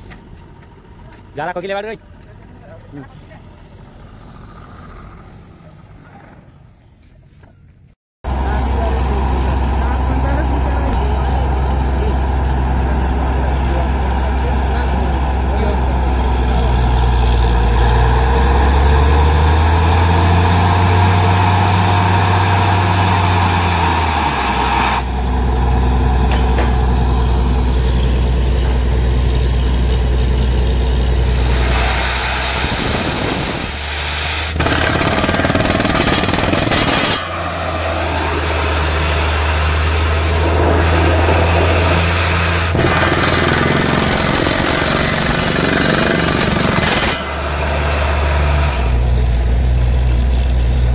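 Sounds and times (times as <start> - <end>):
low engine drone: 0.0 - 7.6, 8.2 - 50.9
air hammer drilling rattle: 31.1 - 49.2.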